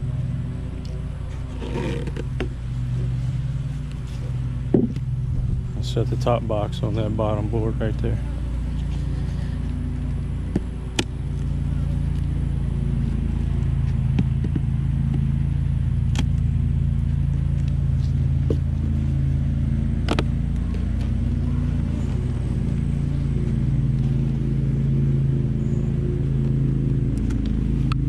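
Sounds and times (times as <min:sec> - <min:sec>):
bees buzzing: 0:06.9 - 0:15.4, 0:17.9 - 0:27.8.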